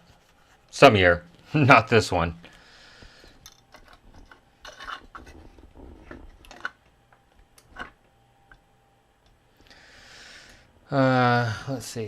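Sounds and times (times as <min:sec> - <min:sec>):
small tools clicking and rustling: 0:03.2 - 0:08.0.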